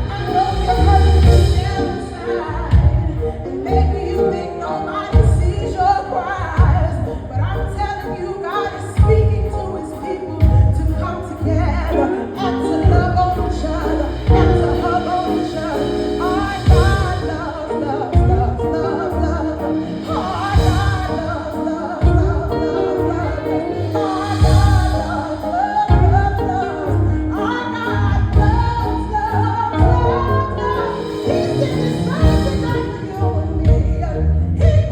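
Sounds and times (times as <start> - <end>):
heavy bass beat: 0.0 - 3.5
person singing: 0.0 - 34.9.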